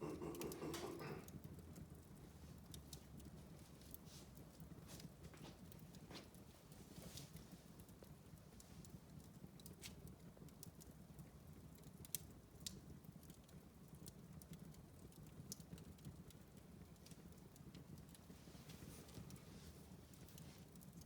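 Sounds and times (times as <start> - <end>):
wood fire crackling and popping: 0.0 - 21.0
fire flames rumbling: 15.4 - 21.0.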